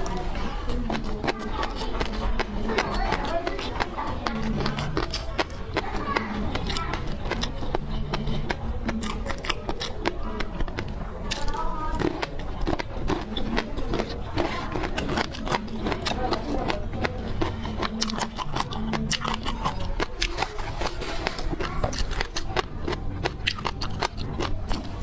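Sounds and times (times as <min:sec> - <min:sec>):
crunching and chewing seafood: 0:00.0 - 0:25.0.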